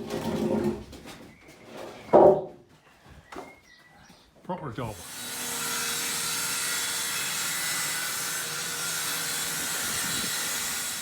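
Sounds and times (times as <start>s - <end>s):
woodworking power tool running: 5.0s - 11.0s.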